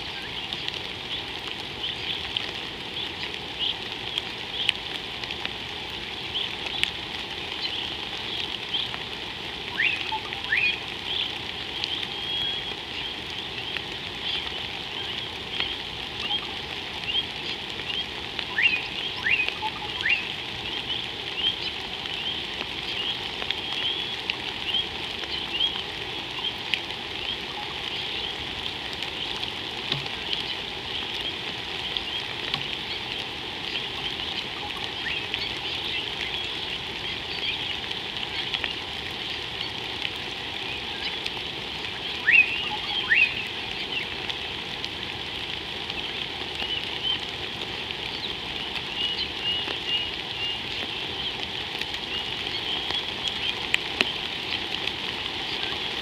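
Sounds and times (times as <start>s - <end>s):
rain hissing on water: 0.0s - 56.0s
downward-sweeping calls: 9.7s - 39.8s, 42.0s - 44.1s.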